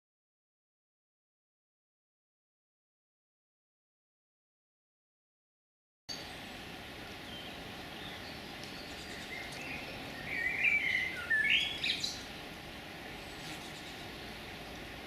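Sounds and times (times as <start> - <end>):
background hiss: 6.1 - 15.0
songbird warbling calls: 7.2 - 12.4, 13.1 - 14.5.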